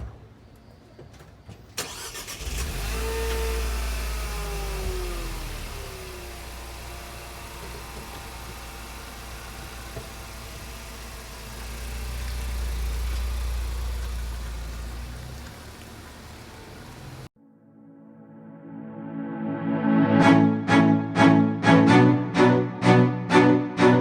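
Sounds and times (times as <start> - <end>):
engine idling: 1.8 - 17.3.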